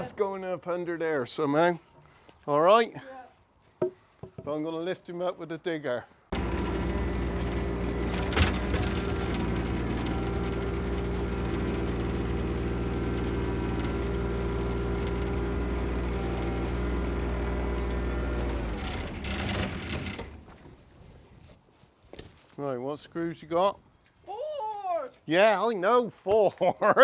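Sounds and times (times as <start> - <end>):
diesel engine running: 6.4 - 20.5.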